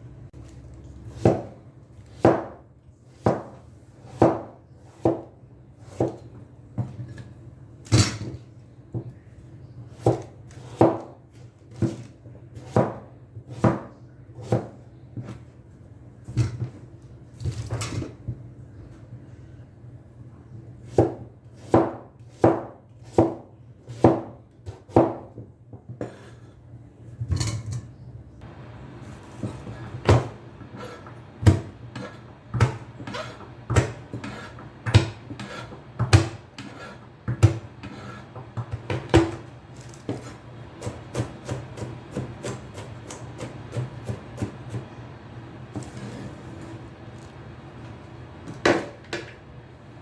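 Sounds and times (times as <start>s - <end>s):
knife chopping on wooden board: 1.1s - 2.6s, 3.2s - 7.0s, 10.0s - 15.4s, 20.9s - 26.3s, 29.3s - 44.9s.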